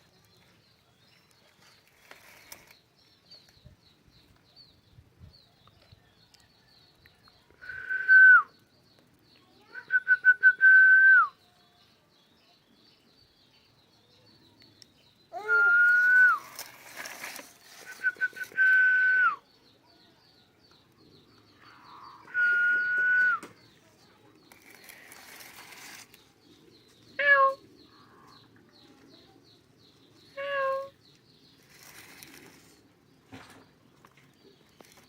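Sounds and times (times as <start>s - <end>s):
long whistles: 7.6s - 8.6s, 15.4s - 16.6s, 17.9s - 19.4s, 22.2s - 23.5s.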